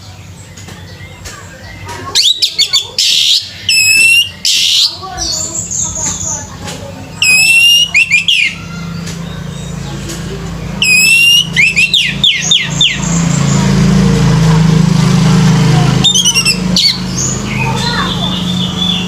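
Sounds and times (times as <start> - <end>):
thrush singing whistled notes: 0.0 - 6.4, 7.1 - 9.9, 10.6 - 13.8, 15.9 - 19.0.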